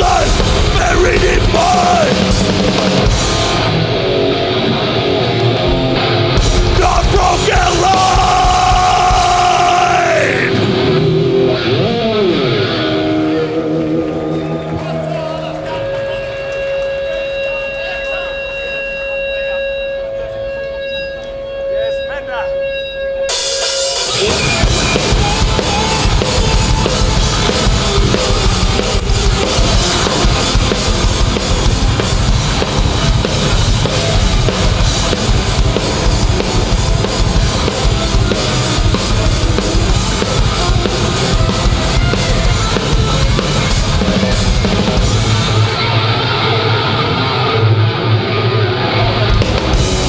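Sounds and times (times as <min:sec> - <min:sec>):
drum kit pounding: 0:00.0 - 0:04.4, 0:05.6 - 0:11.0, 0:23.3 - 0:45.9, 0:49.2 - 0:50.0
heavy guitars and bass: 0:00.0 - 0:19.3, 0:20.1 - 0:50.0.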